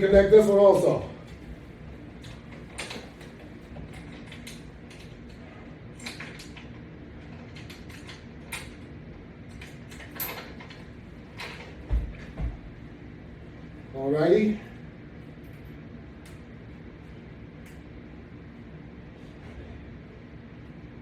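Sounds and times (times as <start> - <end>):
metal hooks clicking and rattling: 9.5 - 11.8.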